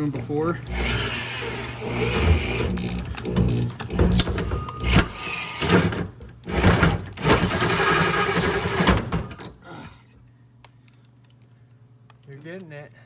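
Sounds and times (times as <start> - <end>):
power drill boring into metal: 0.6 - 9.4.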